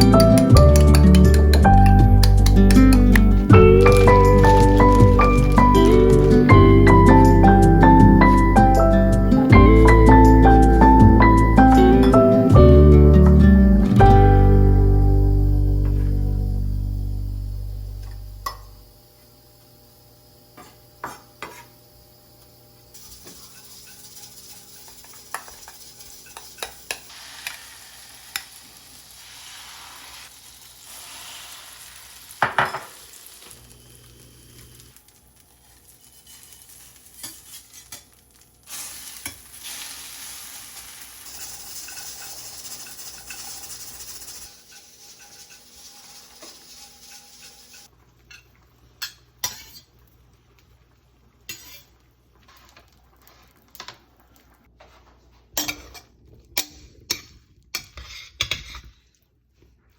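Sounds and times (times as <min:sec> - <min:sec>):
utensils clinking on dishes: 0:00.0 - 0:09.0, 0:23.0 - 0:27.6, 0:32.4 - 0:33.2, 0:40.8 - 0:49.9
steady hiss: 0:22.9 - 0:38.0, 0:38.6 - 0:47.9.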